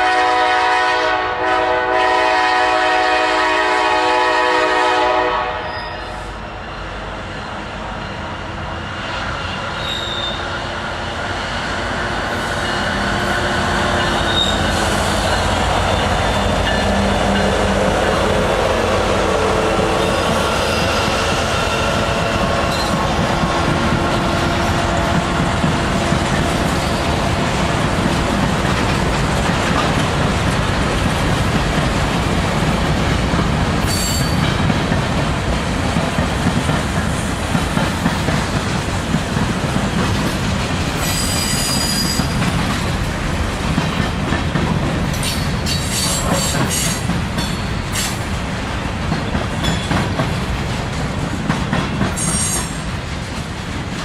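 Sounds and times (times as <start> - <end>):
freight train rumble and clatter: 0.0 - 54.0
high-pitched wheel squeals: 9.6 - 10.6, 14.0 - 15.3, 33.9 - 34.4, 41.0 - 42.4.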